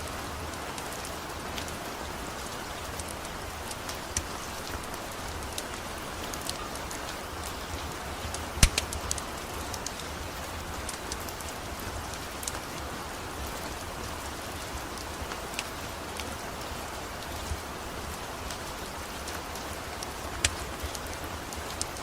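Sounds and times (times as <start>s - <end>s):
steady rain falling: 0.0s - 22.0s
sharp clicks and pops: 8.6s - 9.2s, 20.4s - 21.0s.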